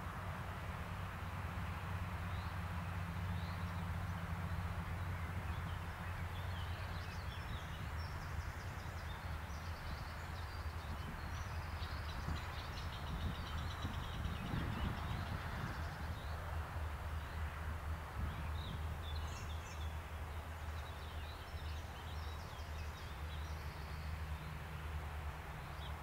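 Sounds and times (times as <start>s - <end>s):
small birds chirping: 5.2s - 16.4s.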